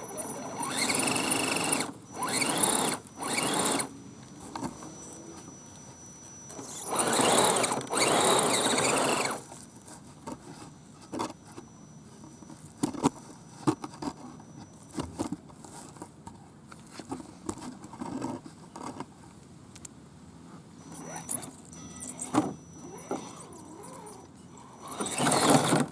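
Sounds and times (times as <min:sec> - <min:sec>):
toy truck motor pushing: 0:00.0 - 0:03.9, 0:06.2 - 0:09.6, 0:20.9 - 0:25.9.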